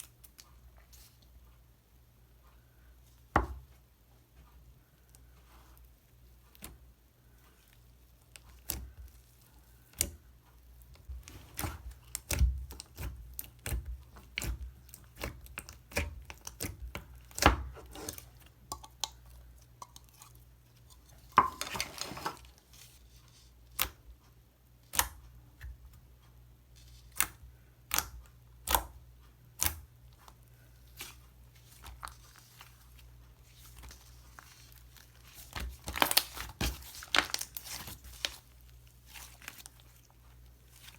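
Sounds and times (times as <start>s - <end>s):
slime crackling: 30.9s - 40.9s.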